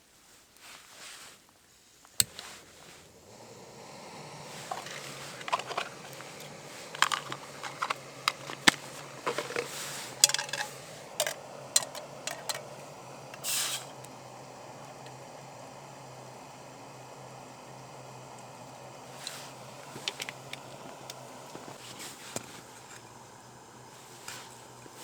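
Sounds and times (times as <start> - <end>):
short hiss: 0.4 - 25.0
camp gear clicking and clinking: 4.5 - 12.8.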